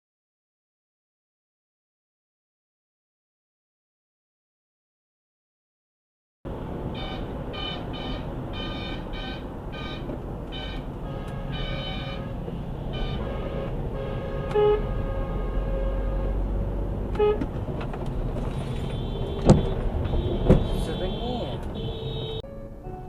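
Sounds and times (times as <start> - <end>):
car horns beeping: 6.5 - 22.5
road and engine noise: 6.5 - 23.0.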